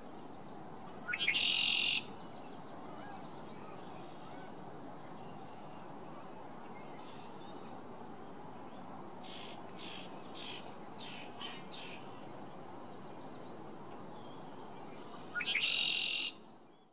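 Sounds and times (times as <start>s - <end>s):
outdoor hiss: 0.0s - 16.9s
high-pitched bird call: 15.4s - 16.4s.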